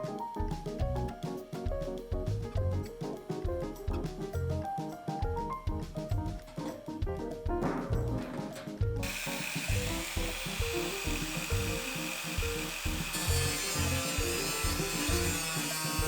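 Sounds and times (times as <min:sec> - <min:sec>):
background music with bass line: 0:00.3 - 0:16.0
tool grinding with hissing rasp: 0:09.0 - 0:16.0.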